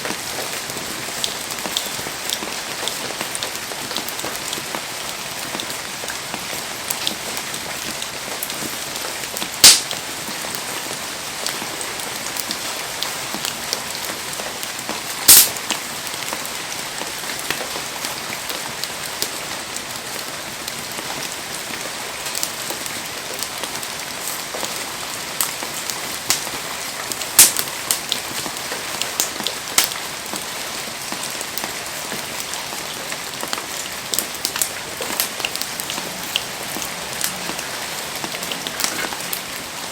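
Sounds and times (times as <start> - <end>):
heavy rain falling: 0.0 - 39.9
sharp cracks: 9.6 - 10.0, 15.3 - 15.6, 27.4 - 27.7.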